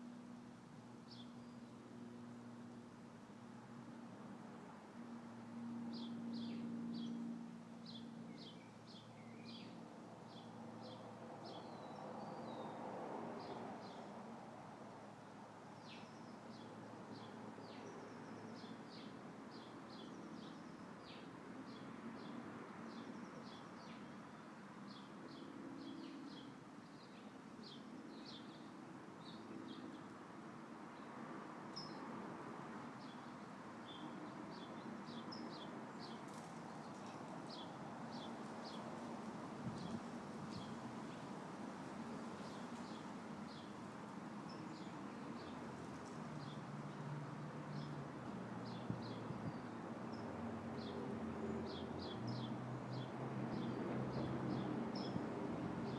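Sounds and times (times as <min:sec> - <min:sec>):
wind rustling tree leaves: 0:08.4 - 0:55.9.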